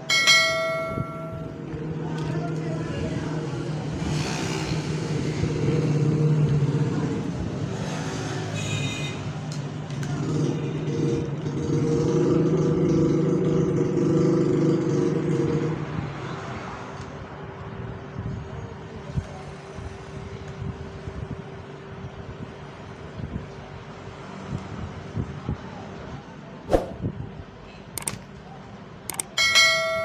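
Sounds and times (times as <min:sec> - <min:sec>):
high ringing tone: 0:00.0 - 0:01.7, 0:29.4 - 0:30.0.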